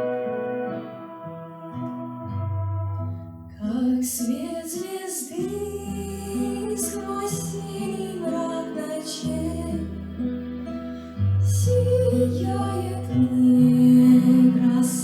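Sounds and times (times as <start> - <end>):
held instrumental chords: 0.0 - 3.5
woman singing slow song: 3.6 - 10.1, 11.4 - 15.0.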